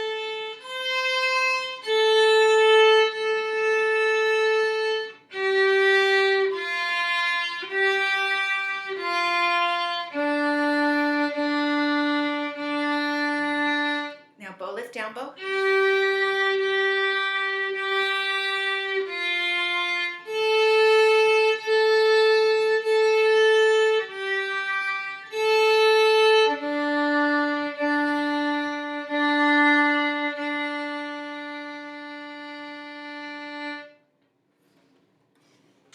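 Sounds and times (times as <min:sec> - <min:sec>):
violin bowed notes: 0:00.0 - 0:34.0.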